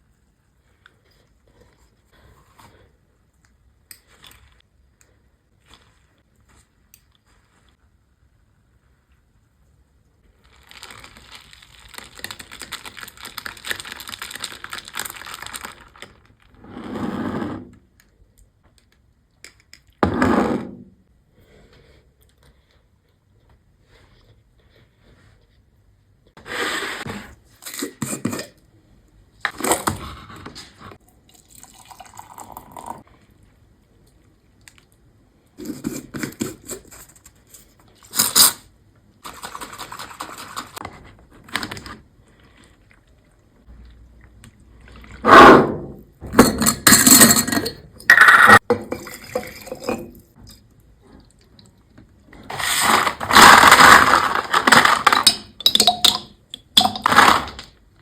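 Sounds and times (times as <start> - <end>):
liquid pouring: 31.2 - 33.0, 48.8 - 50.2
glassware and utensils clinking: 46.4 - 50.2, 54.8 - 57.4.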